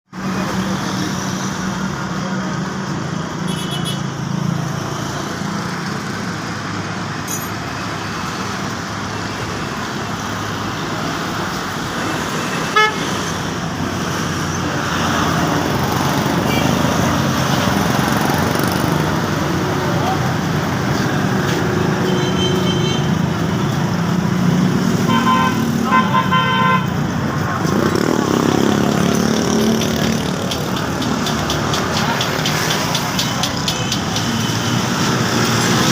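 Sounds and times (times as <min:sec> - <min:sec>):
horn toot: 0:12.6 - 0:13.1.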